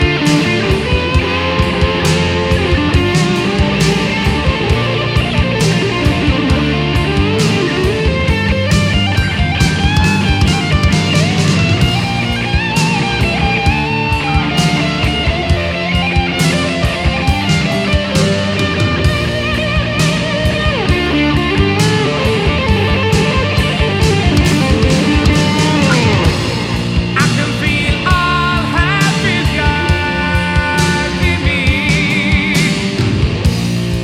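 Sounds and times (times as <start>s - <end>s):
bass guitar: 0.0s - 34.0s
drum kit: 0.0s - 34.0s
electric guitars: 0.0s - 34.0s
guitar sliding down in pitch: 0.0s - 34.0s.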